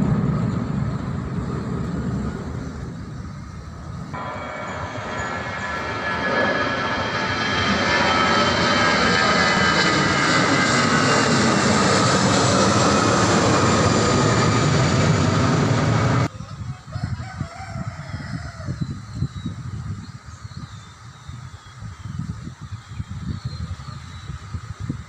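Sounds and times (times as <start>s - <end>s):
airplane engines roaring overhead: 0.0s - 25.0s
rooster crowing: 16.6s - 18.8s.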